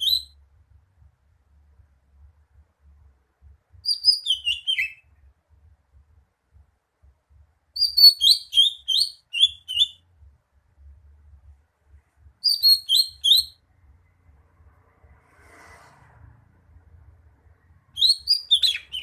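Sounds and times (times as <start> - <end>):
bird chirping sharply: 0.0 - 0.4, 3.8 - 5.2, 7.8 - 10.0, 12.4 - 13.6, 17.8 - 19.0.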